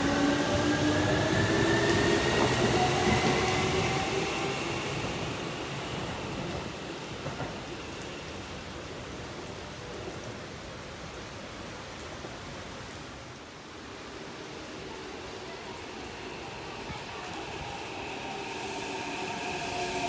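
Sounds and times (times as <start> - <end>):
train running noise: 0.0 - 9.3, 14.1 - 20.0.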